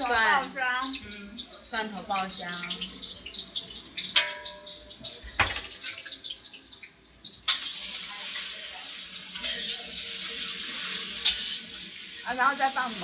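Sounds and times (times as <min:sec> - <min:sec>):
garlic sizzling in hot oil: 0:00.0 - 0:13.0
utensils clattering: 0:02.8 - 0:06.3, 0:07.5 - 0:13.0.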